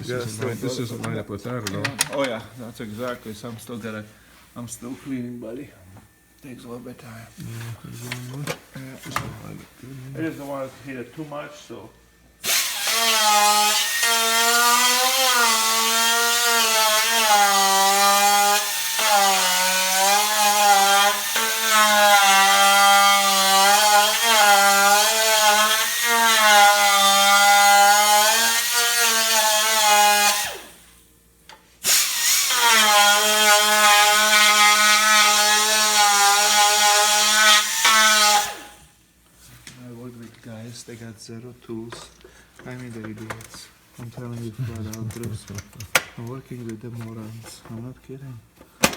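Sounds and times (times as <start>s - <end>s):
power tool motor whining: 12.4s - 30.7s.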